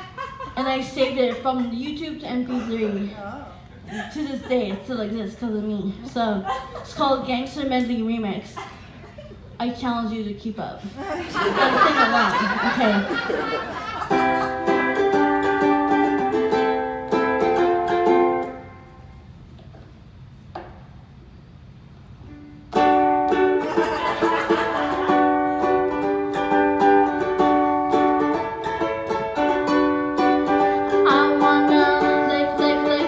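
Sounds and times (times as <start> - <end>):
ukulele strumming chords: 14.0 - 19.1, 22.3 - 33.0.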